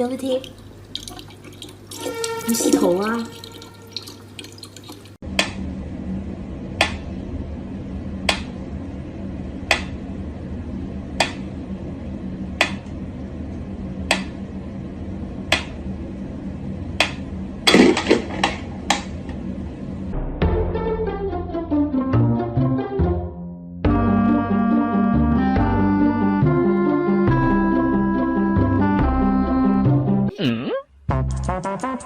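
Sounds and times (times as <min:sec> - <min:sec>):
steady hum: 0:00.0 - 0:20.3.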